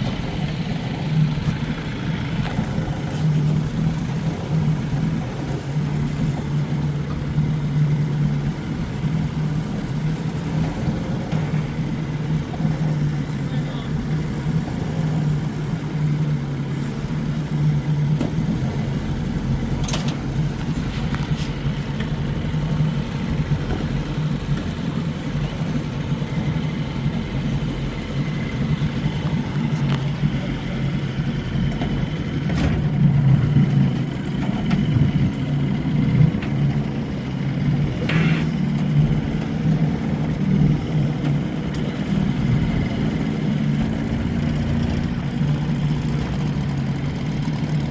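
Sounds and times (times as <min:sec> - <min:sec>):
outboard motor running: 0:00.0 - 0:47.9.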